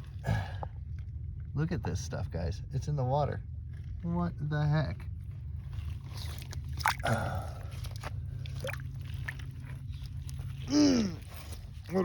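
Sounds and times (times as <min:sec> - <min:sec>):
steady low rumble: 0:00.0 - 0:12.0
shallow water sloshing: 0:05.2 - 0:12.0.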